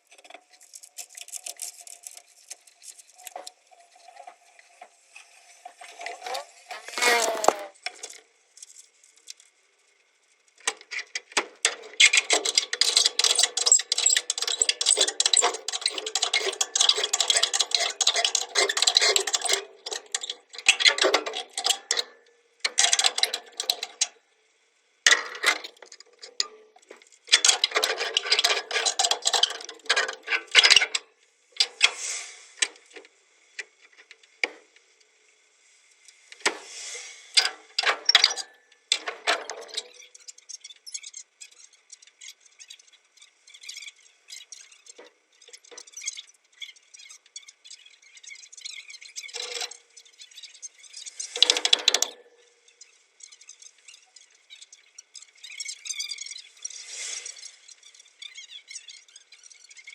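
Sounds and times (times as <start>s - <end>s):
rapid metallic clicking and rattling: 10.6s - 24.2s, 25.1s - 31.0s, 51.2s - 52.2s.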